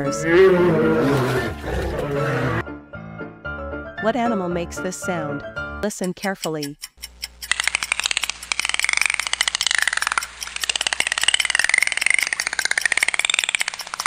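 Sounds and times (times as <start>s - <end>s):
dolphin clicks: 5.8s - 14.0s.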